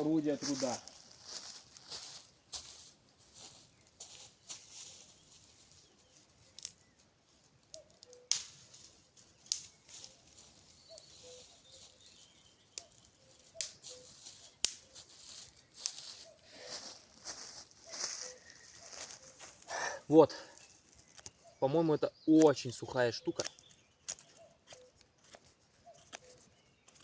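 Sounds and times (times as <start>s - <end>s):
twigs snapping: 6.4s - 7.0s, 7.6s - 16.3s, 20.4s - 21.6s, 23.3s - 27.0s.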